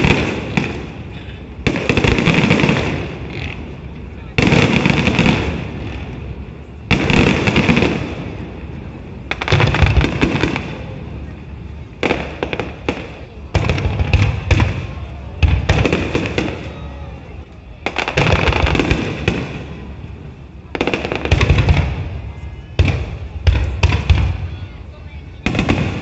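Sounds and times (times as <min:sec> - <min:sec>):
firework crackling: 0:00.0 - 0:26.0.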